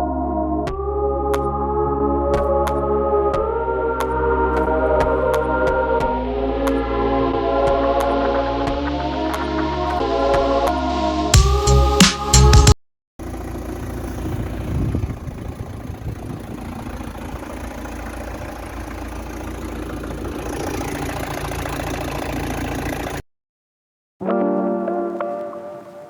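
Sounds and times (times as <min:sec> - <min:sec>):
car engine idling: 0:13.2 - 0:23.2.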